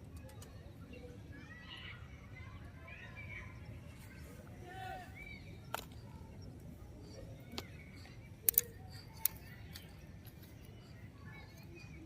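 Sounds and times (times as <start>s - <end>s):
low background noise: 0.0s - 12.0s
faint high chirps: 0.1s - 12.0s
sharp clicks: 7.4s - 10.8s.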